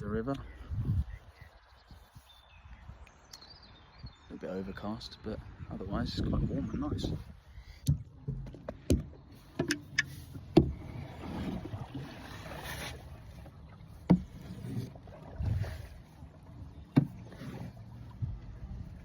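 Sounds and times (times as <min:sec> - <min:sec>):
paddle strokes swishing water: 0:06.6 - 0:19.0.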